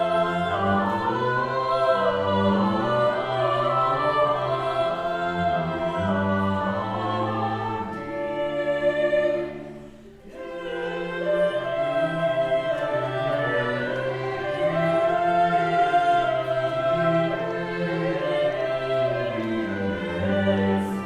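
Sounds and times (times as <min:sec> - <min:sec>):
vocal ensemble with instruments: 0:00.0 - 0:21.0.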